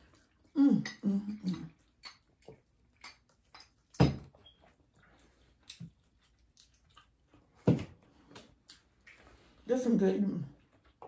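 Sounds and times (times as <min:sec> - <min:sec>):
wet mouth clicks and lip smacks: 0:00.0 - 0:07.4, 0:08.3 - 0:09.3
person chewing: 0:00.0 - 0:09.6.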